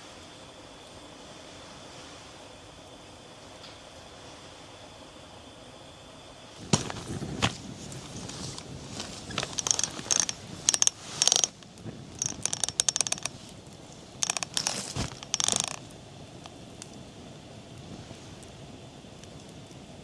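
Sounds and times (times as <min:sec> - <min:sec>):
rapid mechanical clicking: 0:09.0 - 0:17.1.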